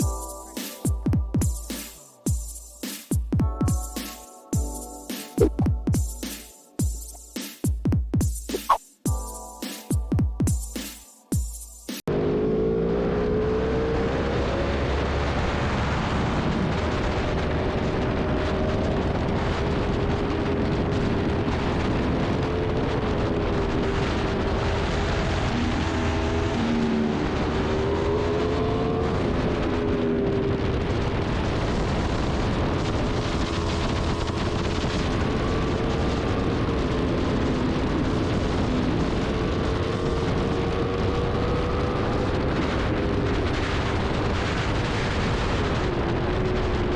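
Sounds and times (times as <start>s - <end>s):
motorcycle engine at speed: 12.1s - 46.9s.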